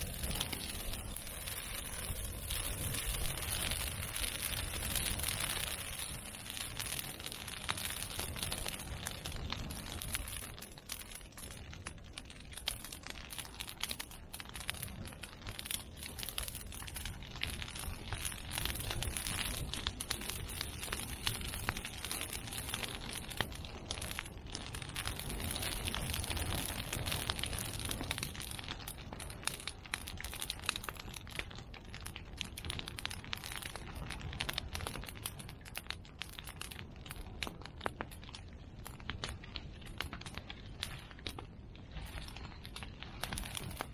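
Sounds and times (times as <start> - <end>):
bonfire crackling and popping: 0.0 - 43.9
low rumble of flame: 0.0 - 43.9.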